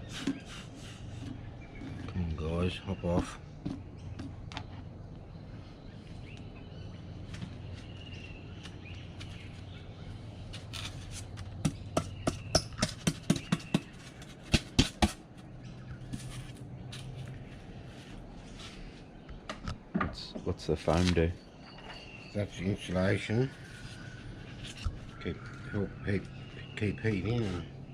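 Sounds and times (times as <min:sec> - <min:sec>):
wooden taps and knocks: 0:19.4 - 0:20.5
faint bird chirps: 0:20.2 - 0:27.9.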